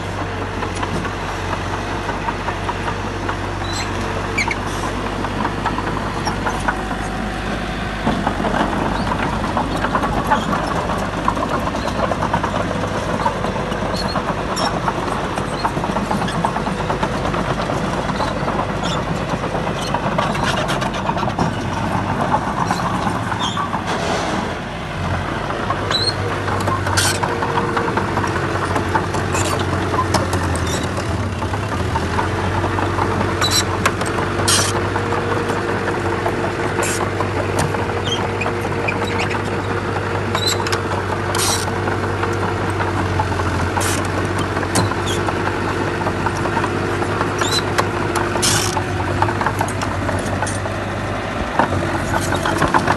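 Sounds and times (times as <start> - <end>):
diesel engine running: 0.0 - 52.9
sharp metal clanks and clicks: 40.3 - 50.7.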